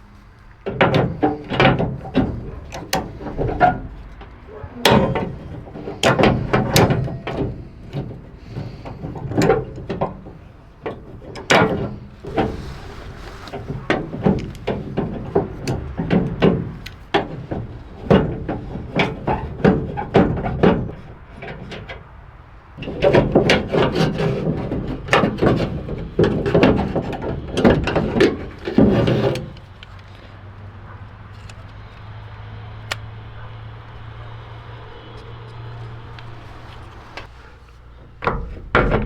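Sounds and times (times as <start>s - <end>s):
hand tools clanking: 0.0s - 39.0s
short metal scrape: 11.9s - 15.7s.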